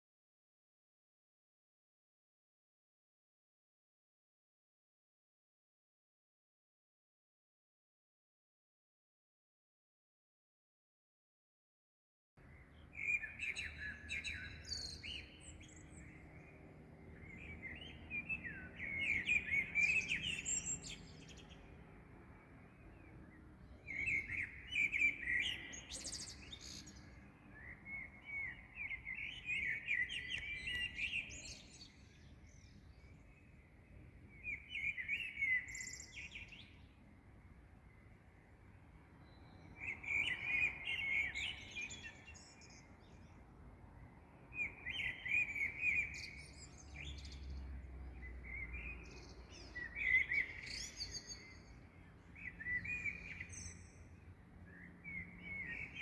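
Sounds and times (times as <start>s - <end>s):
songbirds twittering: 12.4s - 56.0s.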